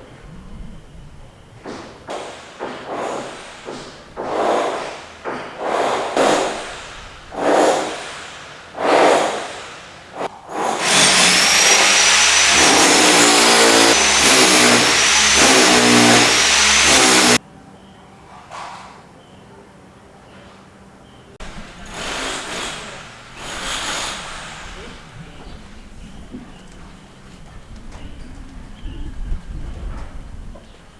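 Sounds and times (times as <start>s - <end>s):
rasping strokes: 10.6s - 17.4s
power tool whining: 10.8s - 17.4s.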